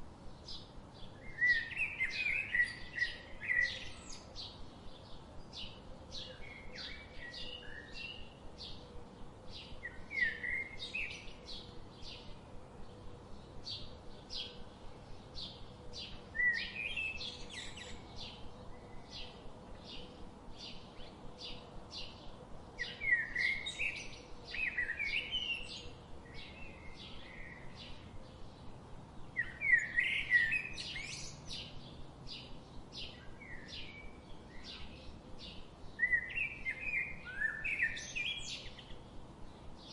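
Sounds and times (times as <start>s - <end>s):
warbled bird song: 0.0s - 39.9s
birds chirping: 12.9s - 39.9s.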